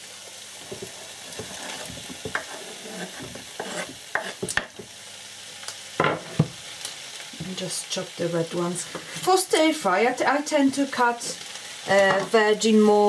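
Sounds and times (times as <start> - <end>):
vegetables sizzling in a hot pan: 0.0 - 13.0
utensil scraping and knocking pan: 0.6 - 4.7.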